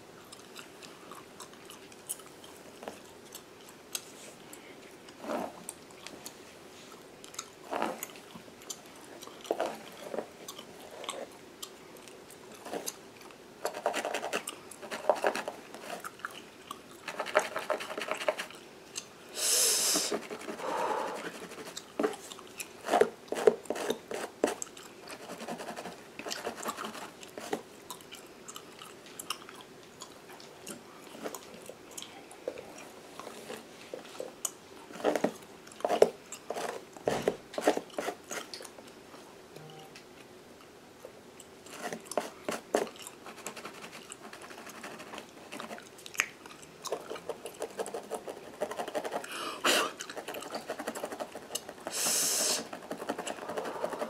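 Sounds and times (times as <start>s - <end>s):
gum chewing and smacking: 0.2s - 19.2s, 20.2s - 39.0s, 39.6s - 52.0s, 52.6s - 54.0s
brief hiss: 19.4s - 20.2s, 51.9s - 52.7s.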